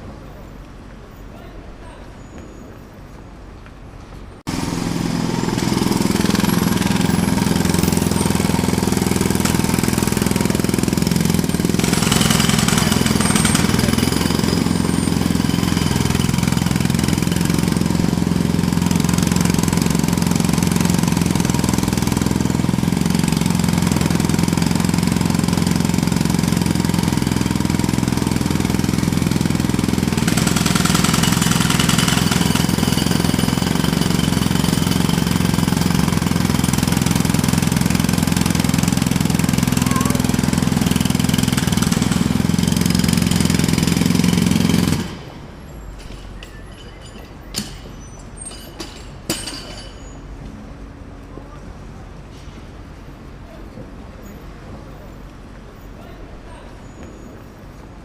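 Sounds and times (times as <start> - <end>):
jackhammer hammering: 4.5 - 50.2.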